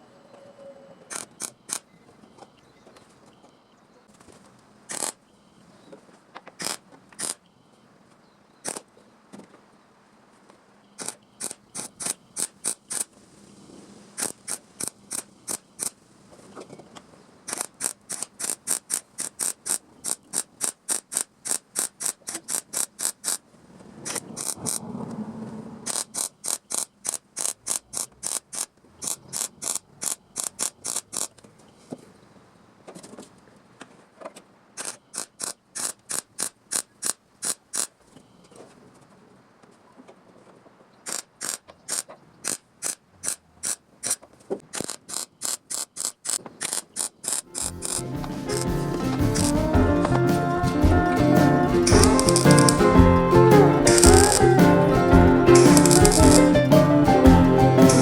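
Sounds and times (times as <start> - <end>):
rapid mechanical clicking: 4.9 - 5.2, 17.5 - 23.4, 25.9 - 31.4, 41.1 - 48.0.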